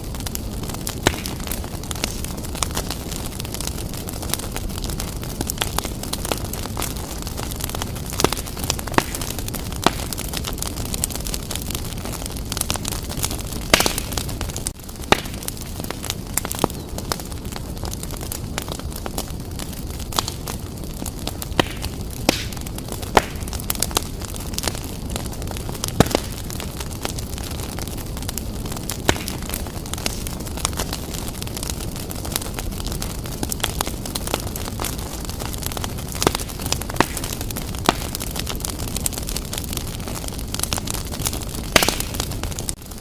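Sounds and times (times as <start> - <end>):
wood fire burning: 0.0 - 43.0.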